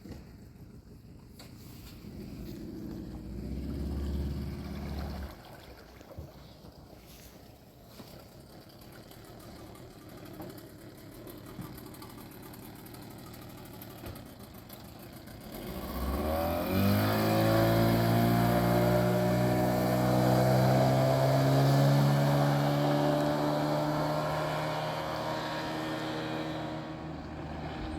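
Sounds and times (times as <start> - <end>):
faint wind: 0.0 - 27.9
water noise: 1.6 - 11.2
engine revving up: 2.5 - 5.4, 15.4 - 27.9.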